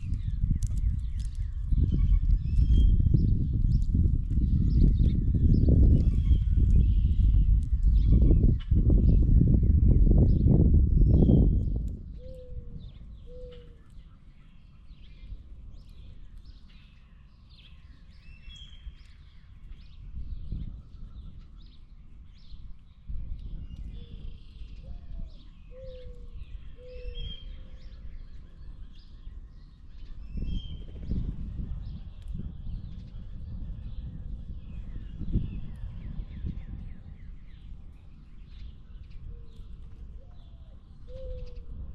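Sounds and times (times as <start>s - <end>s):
steady low rumble: 0.0s - 14.4s, 27.4s - 41.9s
small birds chirping: 0.0s - 41.9s.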